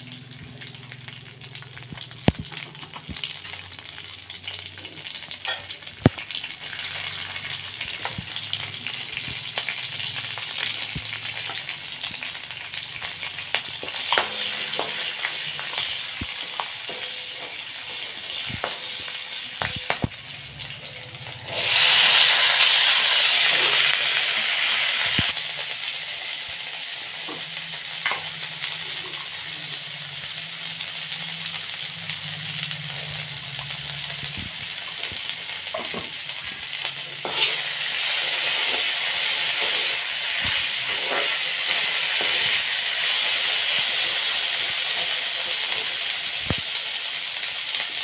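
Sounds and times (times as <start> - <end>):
potatoes sizzling in hot oil: 0.0 - 48.0
metal ladle scraping pan: 37.1 - 45.9.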